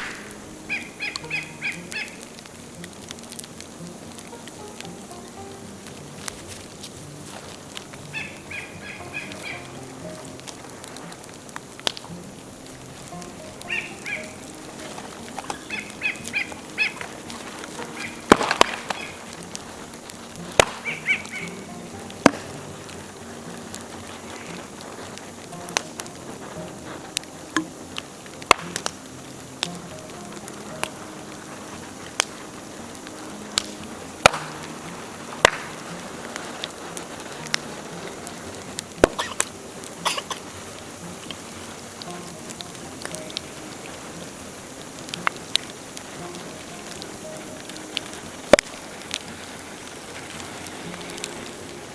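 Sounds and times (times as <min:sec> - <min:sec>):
bamboo popping loudly: 0:00.0 - 0:32.4, 0:33.0 - 0:44.3
bonfire crackling: 0:00.0 - 0:51.9
steady fire hiss: 0:00.0 - 0:51.9
short high chirping calls: 0:15.4 - 0:17.0.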